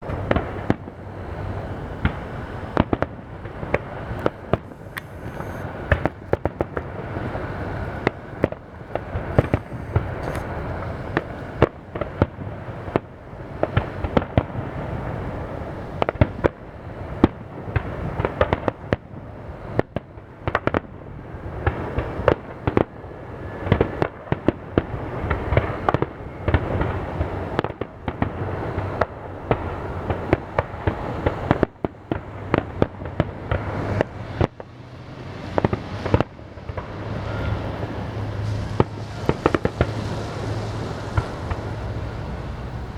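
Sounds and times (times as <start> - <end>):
fireworks bursting: 0.0 - 42.9.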